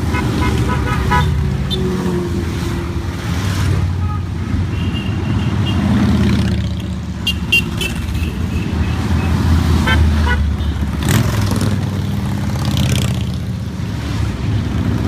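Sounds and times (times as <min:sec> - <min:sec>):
horns tooting: 0:00.0 - 0:02.1, 0:03.7 - 0:06.2, 0:07.2 - 0:10.9
motorcycle engines rumbling: 0:00.0 - 0:15.0.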